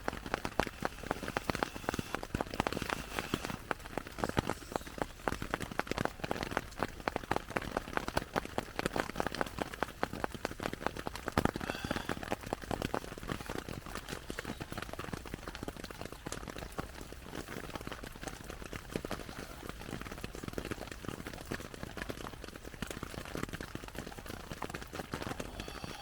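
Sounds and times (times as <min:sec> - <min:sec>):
snow pattering on a tarp: 0:00.0 - 0:26.0.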